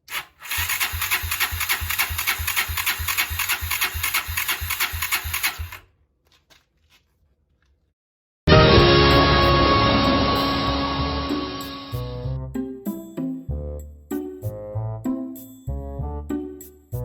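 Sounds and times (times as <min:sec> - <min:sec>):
starter motor cranking engine: 0:00.0 - 0:05.9.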